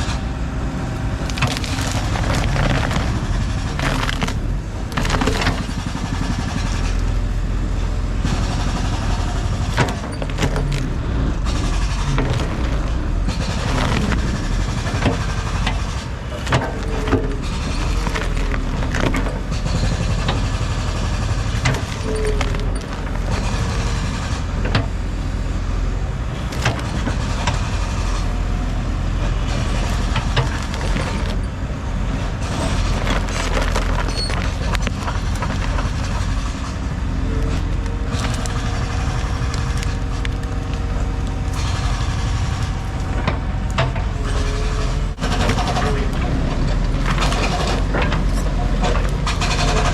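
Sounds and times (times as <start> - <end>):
heavy diesel equipment running: 0.0 - 49.9
material breaking with sharp knocks: 1.0 - 7.0, 8.3 - 24.5, 26.4 - 31.5, 32.4 - 44.5.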